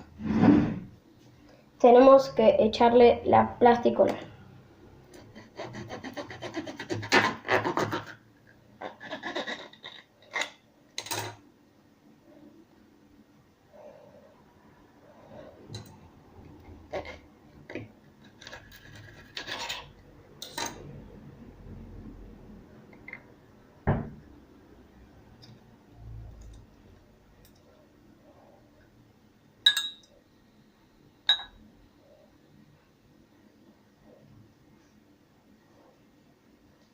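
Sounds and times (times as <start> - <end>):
scratchy rubbing and scraping: 5.2 - 8.2, 8.8 - 10.6, 18.2 - 20.0.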